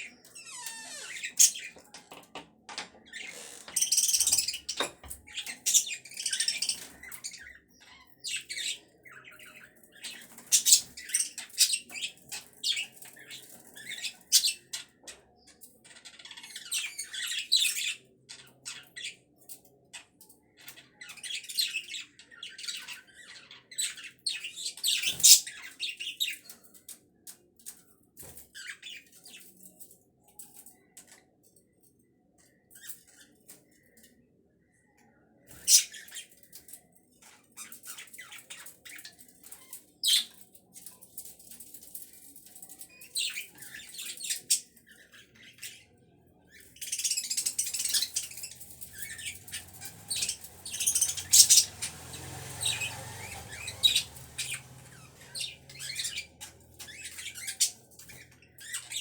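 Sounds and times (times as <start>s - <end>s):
budgerigars chirping and squawking: 0.0s - 2.0s, 2.7s - 15.1s, 15.9s - 19.2s, 20.5s - 26.5s, 35.5s - 36.6s, 43.0s - 45.9s, 46.5s - 59.0s.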